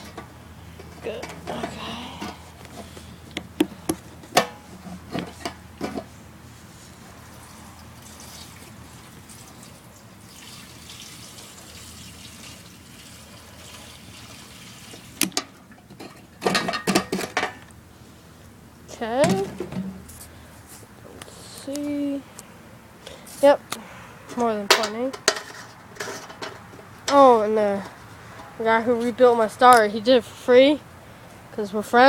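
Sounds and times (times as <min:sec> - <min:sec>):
fuel trickling into tank: 0:07.1 - 0:16.0.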